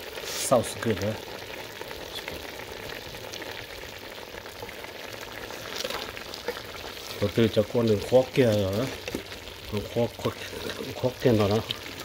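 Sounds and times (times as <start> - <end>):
chicken sizzling in a pot: 0.0 - 12.0
wooden spoon stirring: 5.4 - 12.0.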